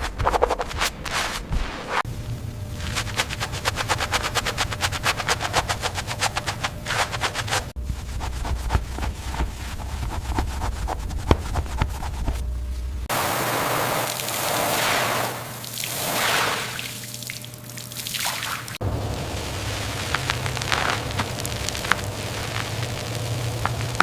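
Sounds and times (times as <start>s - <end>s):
steady hiss: 2.0s - 8.2s, 12.4s - 17.1s, 18.8s - 24.0s
low machine hum: 2.0s - 24.0s.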